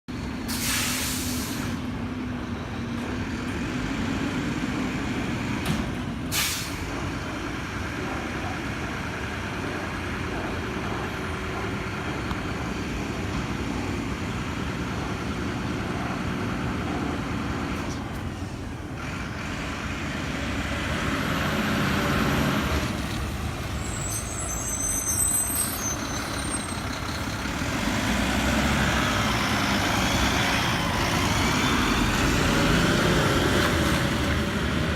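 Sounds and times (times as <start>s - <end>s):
air brakes hissing: 0.5s - 1.9s, 6.3s - 7.1s
high squeals: 23.7s - 27.0s
diesel engine running: 25.8s - 34.9s.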